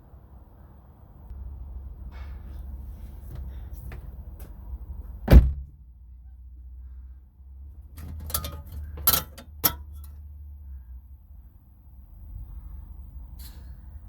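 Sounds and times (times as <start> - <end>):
tools clicking and clinking: 8.0 - 10.2.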